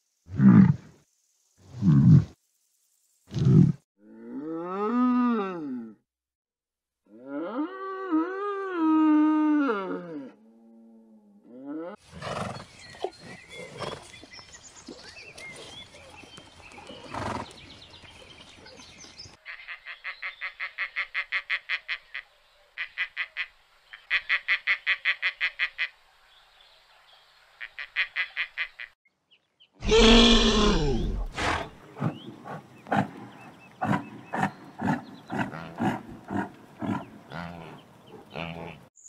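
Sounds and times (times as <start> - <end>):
animal calls: 29.8 - 38.9.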